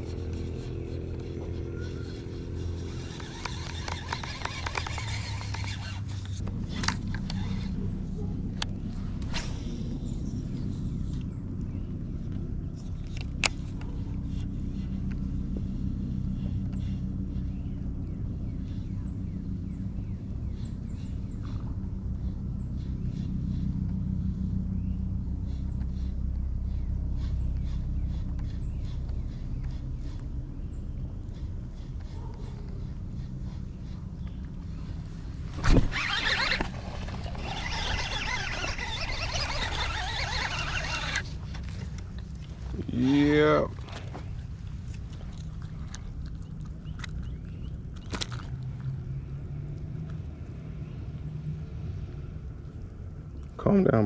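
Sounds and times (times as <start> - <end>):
fishing reel whirring: 0.0 - 7.8, 35.5 - 42.1
low engine rumble: 0.0 - 54.0
steady low hum: 0.0 - 54.0.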